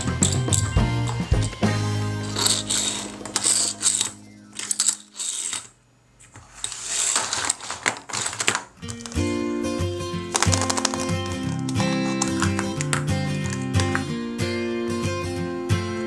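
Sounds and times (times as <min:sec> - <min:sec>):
background music: 0:00.0 - 0:04.8, 0:09.0 - 0:16.0
plastic toys clattering on a table: 0:02.3 - 0:09.3, 0:10.3 - 0:14.1.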